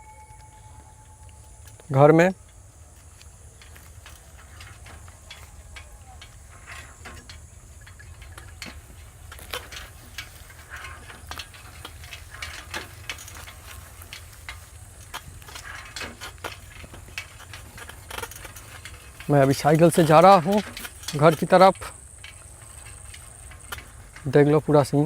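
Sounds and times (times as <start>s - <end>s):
low steady rumble: 0.0s - 16.0s
bicycle chain clicks and rattles: 0.0s - 25.0s.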